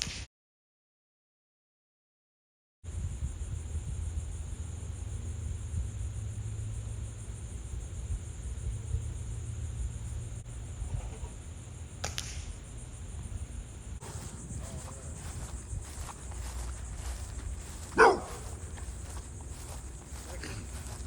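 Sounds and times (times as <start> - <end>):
steady low rumble: 11.5 - 21.0.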